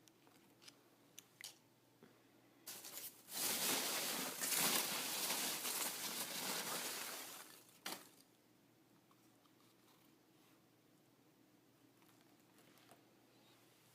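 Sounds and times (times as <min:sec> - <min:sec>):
packaging rustling and crinkling: 0:02.7 - 0:08.2.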